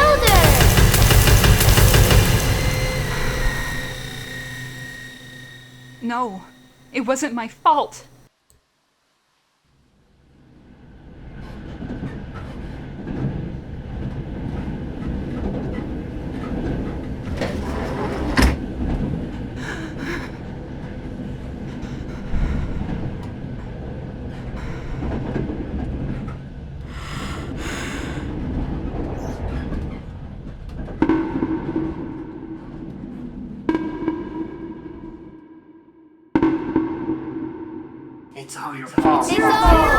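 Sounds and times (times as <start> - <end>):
train rumbling and clattering on rails: 0.0 - 6.0, 10.7 - 33.4.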